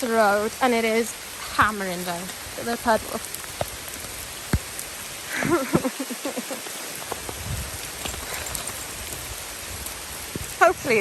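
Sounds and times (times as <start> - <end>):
heavy rain hammering down: 0.0 - 11.0.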